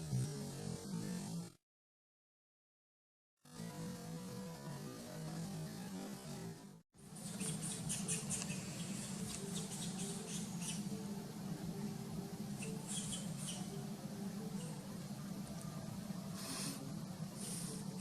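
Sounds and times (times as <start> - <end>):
steady low hum: 3.5 - 18.0
monkey calls: 7.2 - 10.9, 12.6 - 13.7.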